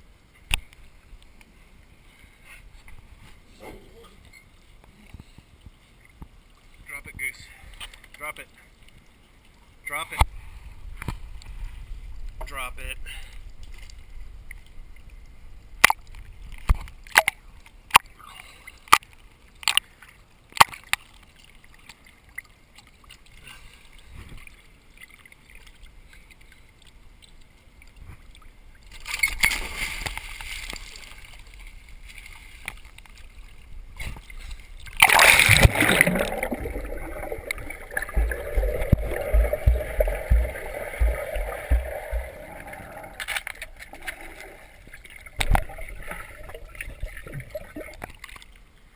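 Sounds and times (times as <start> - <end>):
water sloshing and splashing: 13.2 - 48.9.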